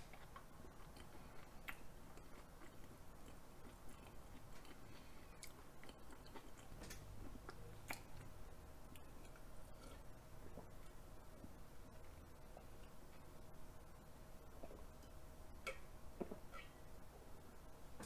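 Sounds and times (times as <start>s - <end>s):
close-miked chewing: 0.0s - 11.0s.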